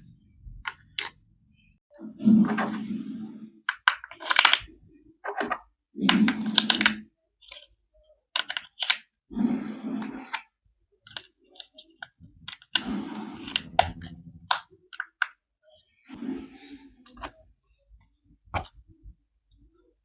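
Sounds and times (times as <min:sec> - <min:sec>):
plastic toy clicks: 0:08.4 - 0:09.0.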